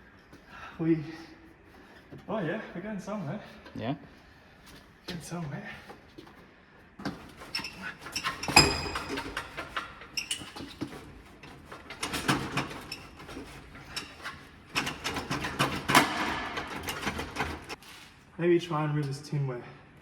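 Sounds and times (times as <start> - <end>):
metal clanks and rattles: 7.0 - 17.8.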